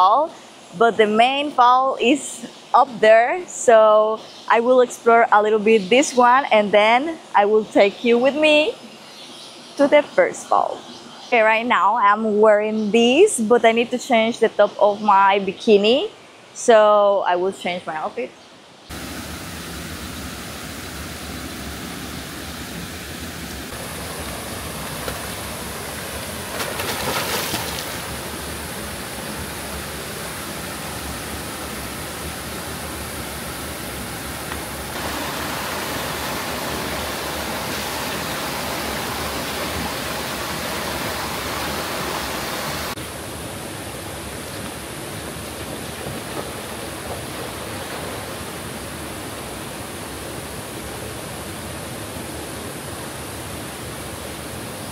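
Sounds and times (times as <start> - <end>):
waterfall and river rushing: 18.9 - 54.9.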